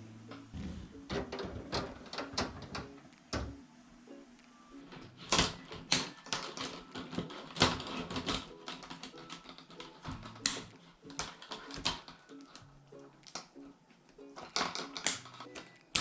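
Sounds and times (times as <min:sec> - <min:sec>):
soft background music: 0:00.0 - 0:16.0
irregular clicks and taps: 0:04.4 - 0:16.0.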